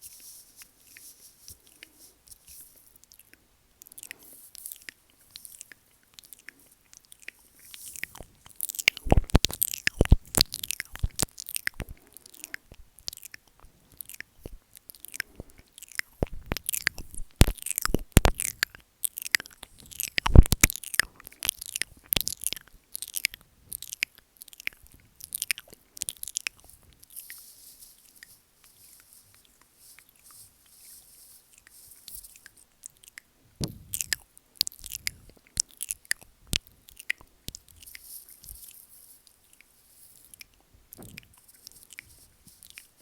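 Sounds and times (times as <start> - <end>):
wet mouth clicks and smacks: 3.0 - 27.2, 33.9 - 38.0.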